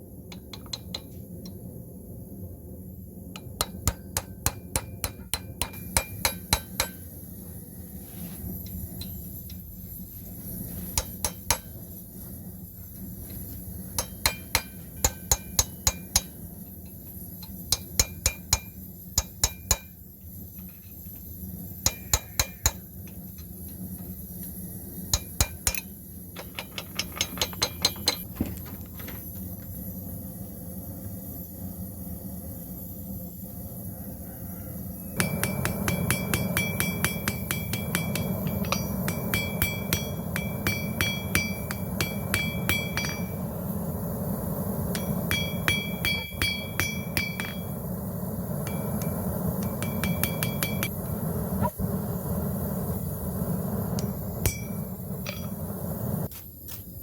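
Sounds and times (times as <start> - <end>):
steady low hum: 0.0 - 57.0
hammer striking metal on anvil: 3.4 - 7.1, 10.9 - 11.9, 13.9 - 20.0, 21.8 - 23.2, 25.1 - 28.3, 35.2 - 43.5, 44.9 - 47.8, 48.6 - 51.0, 53.9 - 55.6.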